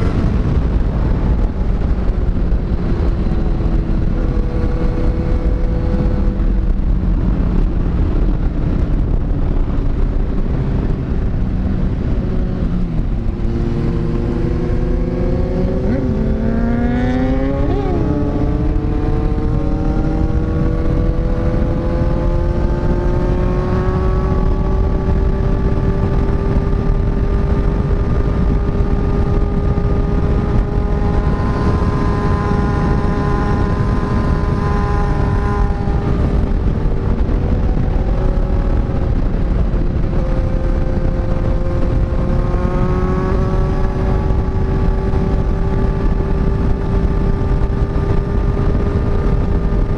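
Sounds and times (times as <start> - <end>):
motorcycle engine at high revs: 0.0 - 49.9
wind noise on microphone: 0.0 - 49.9.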